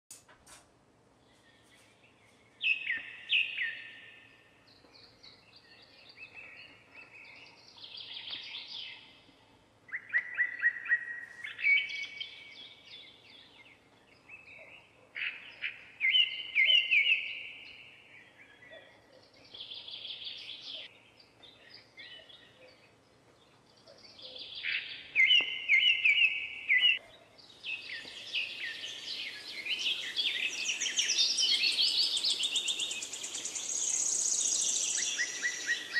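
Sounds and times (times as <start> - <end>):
birds singing: 1.2 - 35.9.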